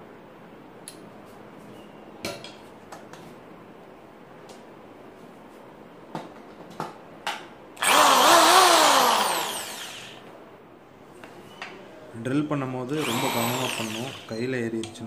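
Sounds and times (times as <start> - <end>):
electric drill running: 7.8 - 10.2, 13.0 - 14.5.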